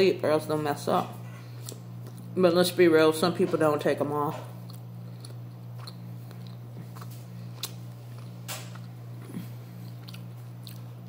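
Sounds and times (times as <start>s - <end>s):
steady low hum: 0.0s - 11.0s
close-up chewing: 1.4s - 2.4s, 4.5s - 11.0s.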